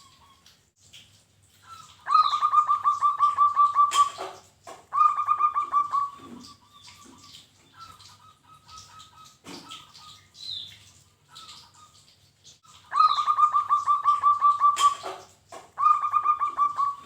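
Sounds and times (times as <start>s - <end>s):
dove cooing: 1.7s - 10.1s, 12.8s - 17.0s.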